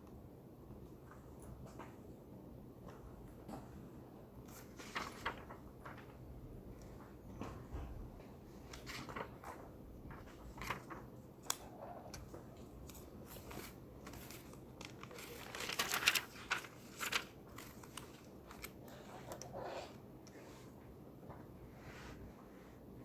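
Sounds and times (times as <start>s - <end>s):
paper or wrapper rustling: 4.6s - 6.1s, 12.8s - 18.9s.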